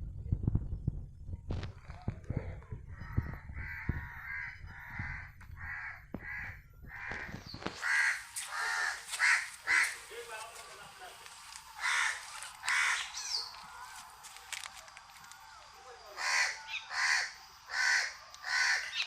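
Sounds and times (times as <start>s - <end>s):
low rumbling noise: 0.0s - 7.8s
crow cawing: 3.6s - 10.1s, 11.8s - 13.4s, 16.1s - 19.0s.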